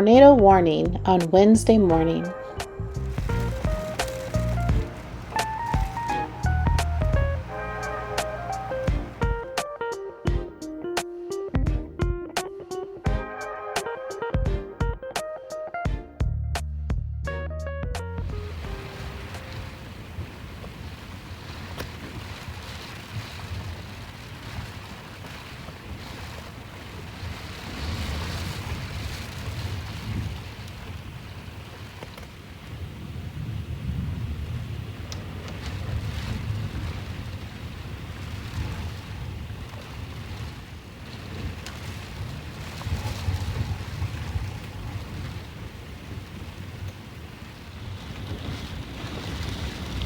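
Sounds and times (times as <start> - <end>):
gusty wind buffeting microphone: 0.0 - 10.6, 18.0 - 50.0
rain: 2.8 - 9.5, 18.3 - 50.0.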